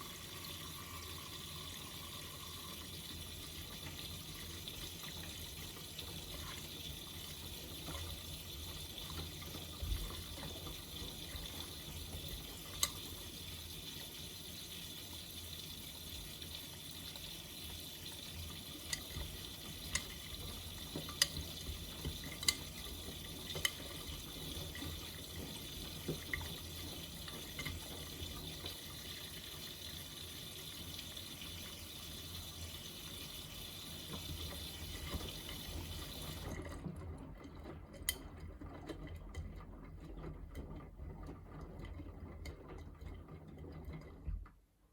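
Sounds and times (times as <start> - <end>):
water splashing in washing machine drum: 0.0 - 44.5.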